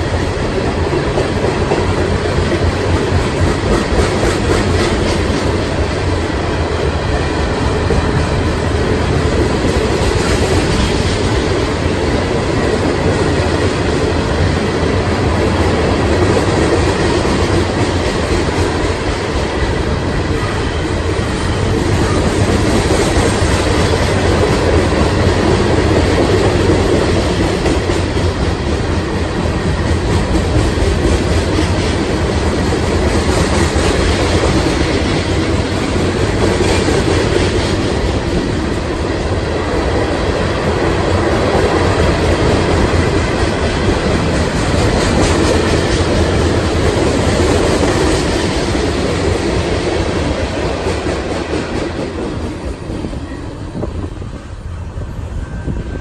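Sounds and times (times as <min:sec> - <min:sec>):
clickety-clack over rail joints: 0:00.0 - 0:56.0
train wheels rumbling on rail: 0:00.0 - 0:56.0.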